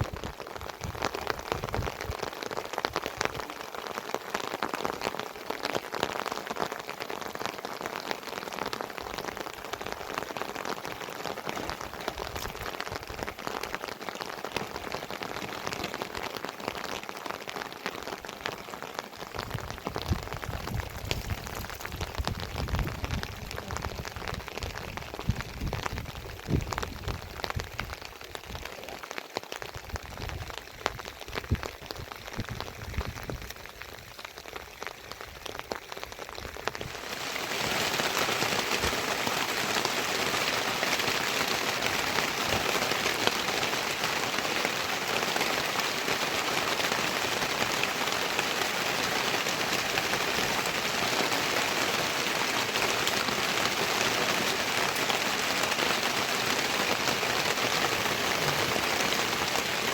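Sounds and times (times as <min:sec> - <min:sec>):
rain drips and taps: 0:00.0 - 0:59.9
steady downpour hiss: 0:00.0 - 0:59.9.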